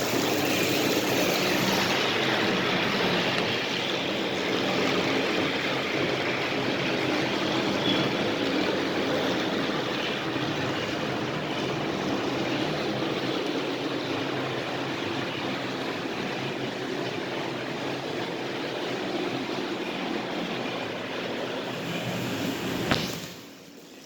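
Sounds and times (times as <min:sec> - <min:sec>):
toy train engines whirring: 0:00.0 - 0:04.8.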